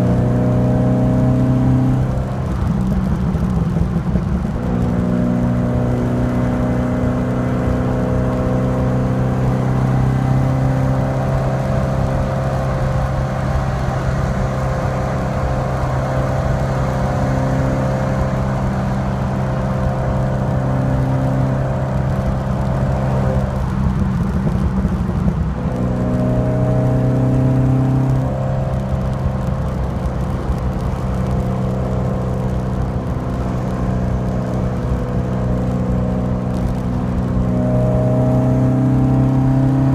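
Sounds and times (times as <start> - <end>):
car engine running steadily: 0.0 - 39.9.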